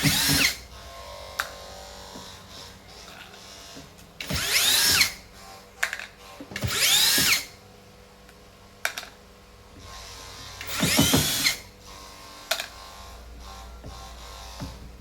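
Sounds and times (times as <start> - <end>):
power drill motor whining: 0.0 - 5.5, 6.2 - 7.6, 9.8 - 14.8.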